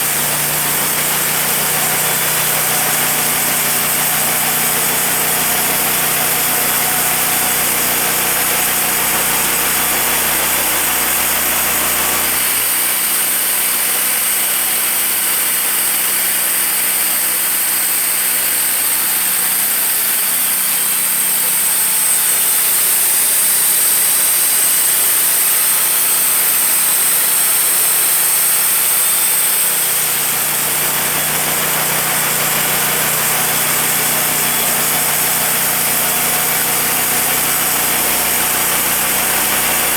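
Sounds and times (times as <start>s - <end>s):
engine running: 0.0s - 12.9s, 29.0s - 39.9s
band sawmill running: 0.0s - 39.9s.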